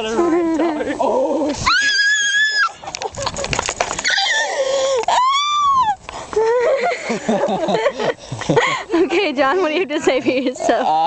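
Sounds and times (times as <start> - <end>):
long high-pitched cries: 1.6 - 2.8, 4.0 - 6.6.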